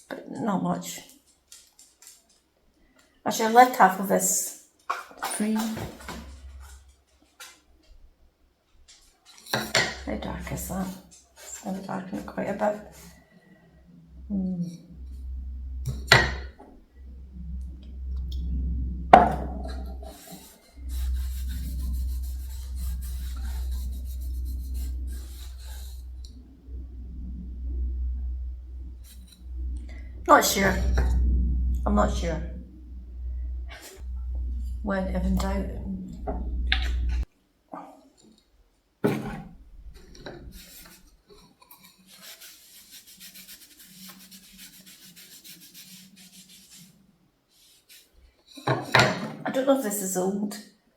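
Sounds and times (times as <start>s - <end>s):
cloth rubbing over wood: 9.3s - 31.2s, 41.8s - 48.3s.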